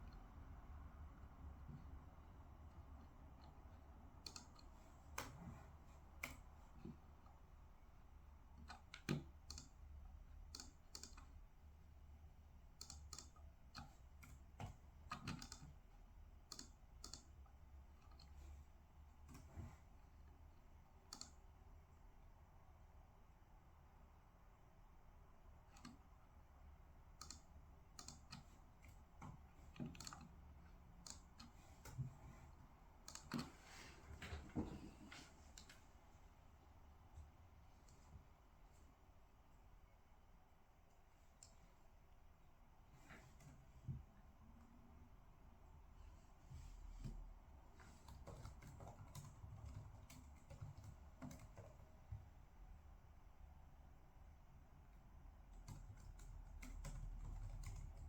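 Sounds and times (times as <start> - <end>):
typing on computer keyboard: 4.2 - 5.4, 10.4 - 11.4, 12.7 - 18.4, 21.1 - 21.4, 27.1 - 32.2, 33.0 - 33.5, 47.9 - 52.2, 55.5 - 58.0.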